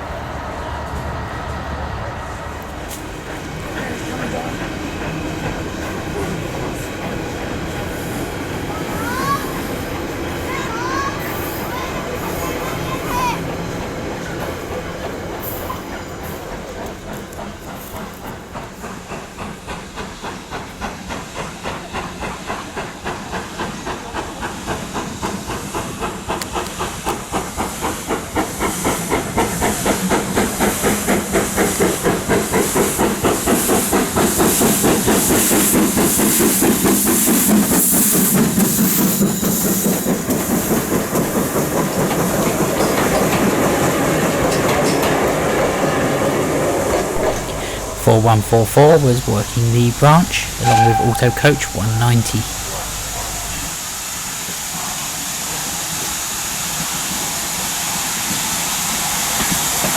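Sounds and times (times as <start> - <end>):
steam locomotive exhaust beats: 46.9 - 53.8.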